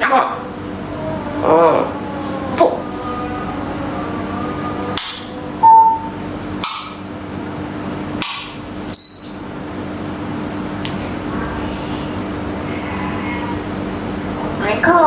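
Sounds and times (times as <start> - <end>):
parrot calls: 0.0 - 7.1, 8.2 - 9.6
parrot whistle: 5.0 - 7.0, 8.2 - 9.6.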